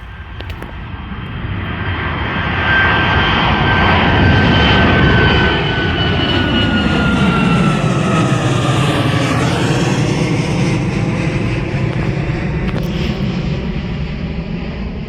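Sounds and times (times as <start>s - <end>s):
airliner engine roar: 0.0s - 15.0s
high jet whine dropping in pitch: 2.4s - 13.9s.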